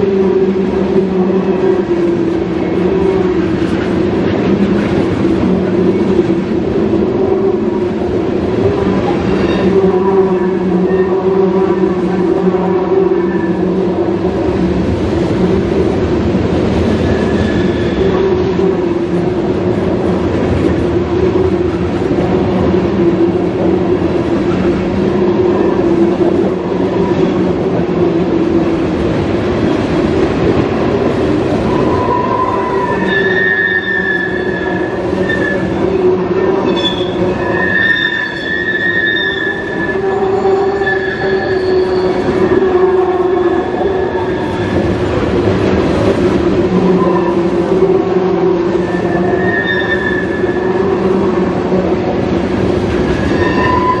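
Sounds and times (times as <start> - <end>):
train wheels rumbling on rail: 0.0 - 54.0
high thin wheel squeal: 31.8 - 35.7, 36.6 - 42.3, 48.9 - 50.6, 53.3 - 54.0.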